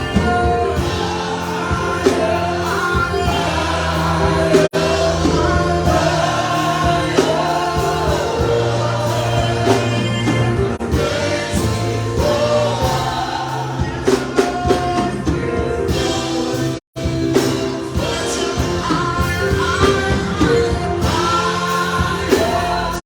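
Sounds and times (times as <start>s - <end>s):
steady bass line: 0.0s - 15.2s
choir singing gospel: 0.0s - 23.0s.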